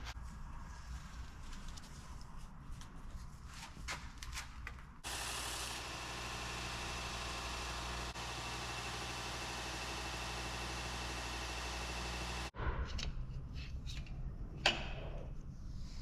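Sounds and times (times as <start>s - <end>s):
electric shop machine running: 5.0s - 12.5s.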